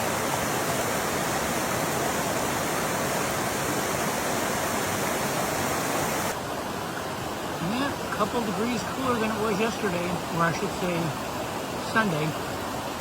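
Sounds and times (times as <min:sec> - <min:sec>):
creek water pouring over stones: 0:00.0 - 0:13.0.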